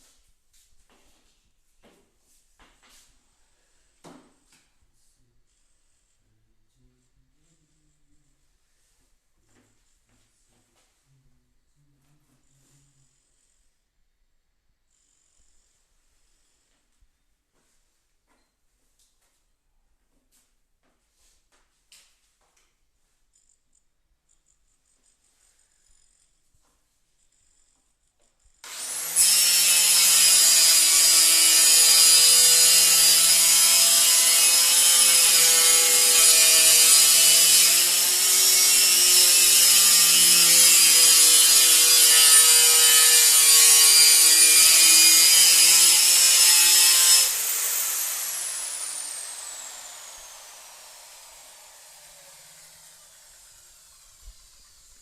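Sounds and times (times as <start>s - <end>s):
power tool whining: 28.6s - 55.0s
motor winding down: 42.6s - 55.0s.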